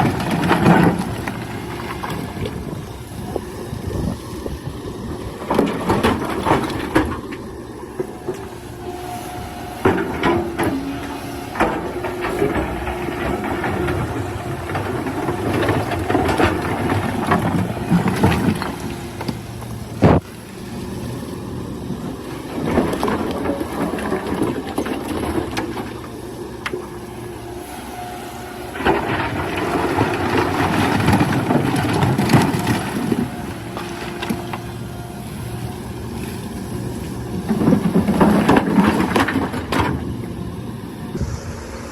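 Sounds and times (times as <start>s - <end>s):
excavator engine running: 0.0s - 41.9s.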